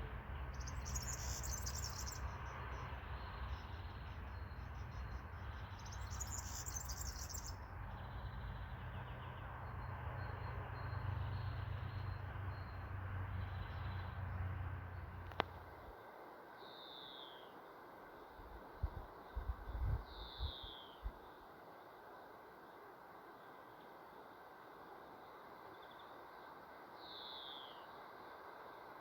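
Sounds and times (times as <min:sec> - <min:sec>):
faint bird chirps: 0:00.5 - 0:02.4, 0:03.6 - 0:14.1, 0:16.6 - 0:17.6, 0:19.3 - 0:21.5, 0:25.7 - 0:26.4, 0:27.0 - 0:28.1
steady low rumble: 0:18.4 - 0:21.2.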